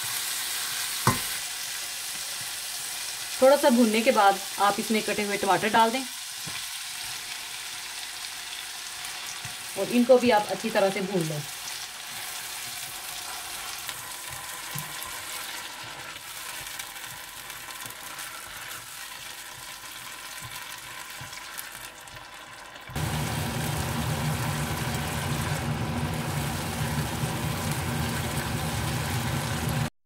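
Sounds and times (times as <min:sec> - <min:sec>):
food sizzling in oil: 0:00.0 - 0:29.9
spatula stirring in pot: 0:11.5 - 0:22.5.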